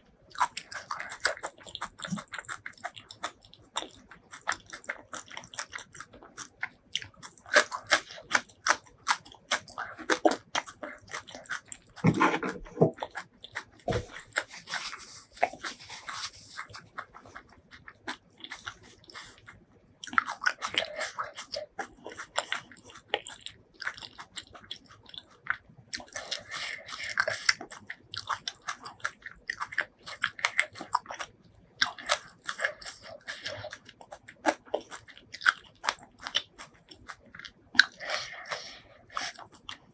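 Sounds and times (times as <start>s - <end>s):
person chewing crunchy food: 0.1s - 39.9s.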